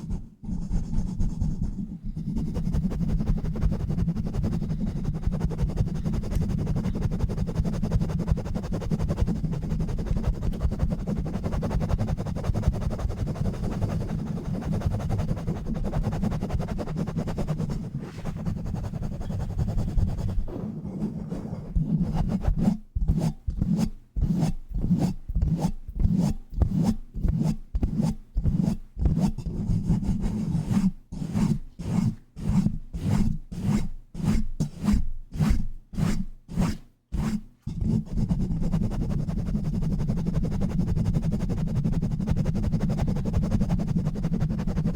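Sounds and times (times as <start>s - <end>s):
rubbing on microphone: 0.0s - 44.9s.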